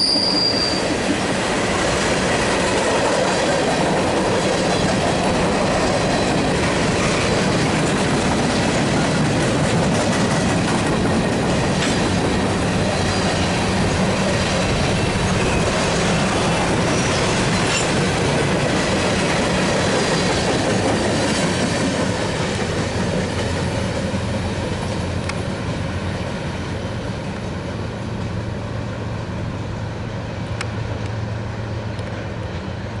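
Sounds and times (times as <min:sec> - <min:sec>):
freight train wheels clacking on rails: 0:00.0 - 0:29.0.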